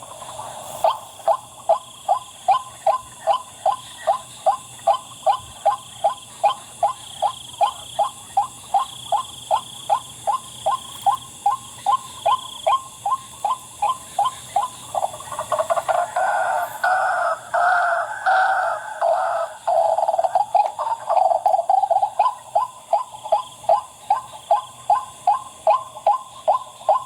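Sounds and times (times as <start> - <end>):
waterhen calling: 13.1 - 27.0.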